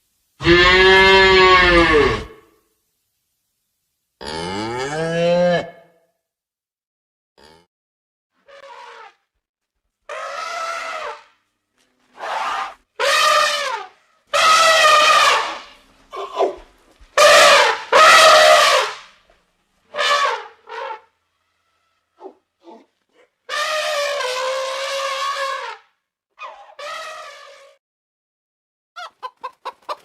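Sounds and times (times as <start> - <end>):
drawn-out animal calls: 10.1 - 11.2.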